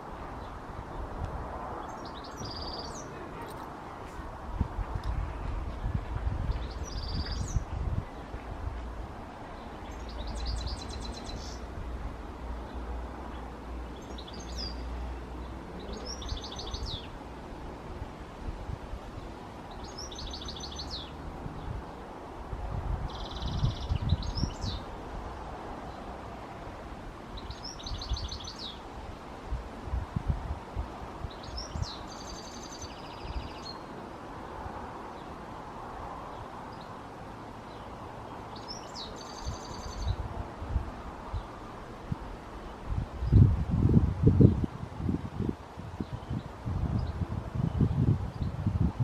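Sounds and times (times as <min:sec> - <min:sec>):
songbird singing trilled phrases: 0:01.9 - 0:03.6, 0:06.5 - 0:07.7, 0:09.8 - 0:11.7, 0:15.8 - 0:17.1, 0:19.7 - 0:21.2, 0:31.3 - 0:33.9, 0:38.5 - 0:40.2.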